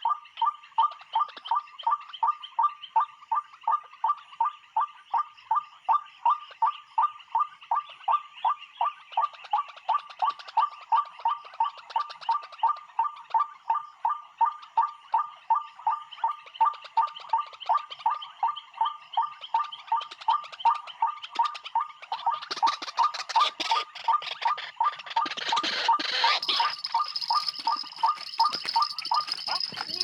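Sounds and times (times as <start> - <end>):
bird calling: 24.9 - 30.0.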